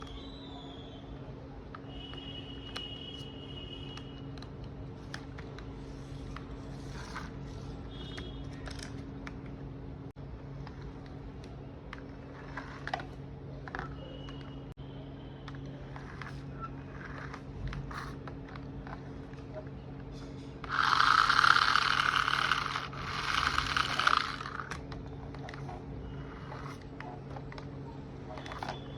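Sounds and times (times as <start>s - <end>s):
toy bulldozer mechanical whirring: 15.5s - 19.1s, 20.6s - 27.0s
small electric motor humming: 20.6s - 24.8s.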